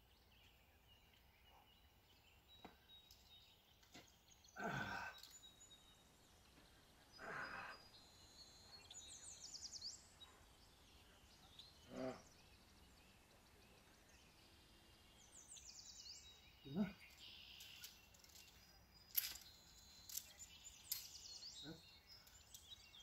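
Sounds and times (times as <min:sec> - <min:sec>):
faint bird chirps: 0:00.0 - 0:23.0
climber grunting with effort: 0:04.6 - 0:05.2, 0:07.2 - 0:07.8, 0:11.9 - 0:12.3, 0:16.7 - 0:17.0.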